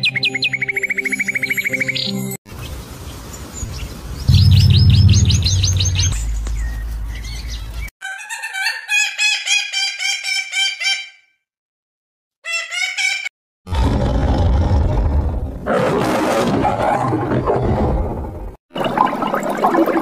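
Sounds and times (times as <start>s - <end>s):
low rumble: 4.3s - 7.8s
high bird chirps: 4.3s - 11.0s
pitched bird calls: 4.3s - 11.2s, 12.4s - 13.3s.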